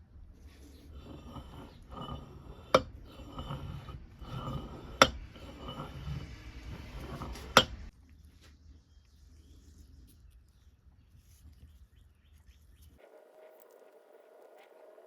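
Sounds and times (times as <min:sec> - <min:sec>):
metal rubbing and scraping: 0:00.4 - 0:07.9.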